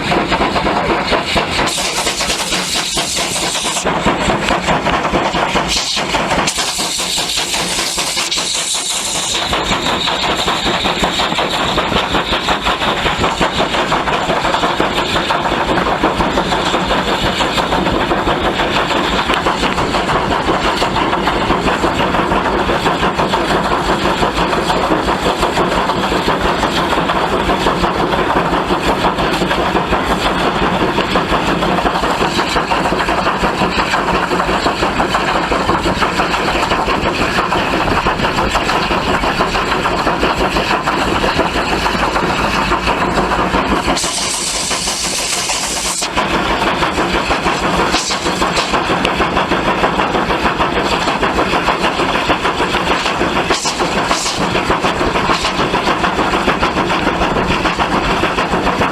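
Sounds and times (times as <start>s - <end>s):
hissing steam: 0.0s - 58.9s
steam locomotive exhaust beats: 0.0s - 58.9s.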